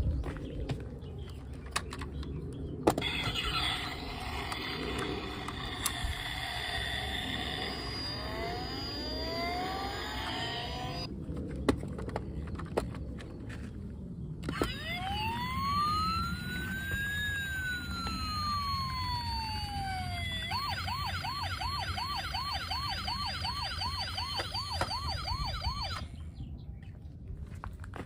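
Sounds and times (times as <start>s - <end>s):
electronic emergency siren: 2.9s - 11.1s, 14.4s - 26.2s.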